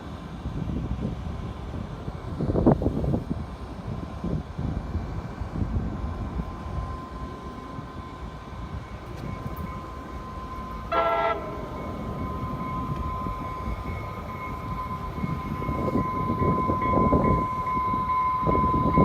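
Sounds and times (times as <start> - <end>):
train rumbling with whine: 0.0 - 19.0
train horn toot: 10.7 - 13.4.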